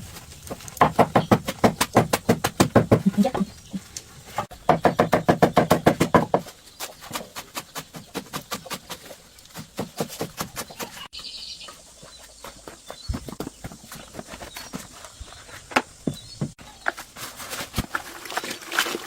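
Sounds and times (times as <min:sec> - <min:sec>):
rapid sharp knocks: 0:00.8 - 0:03.3, 0:04.7 - 0:06.5.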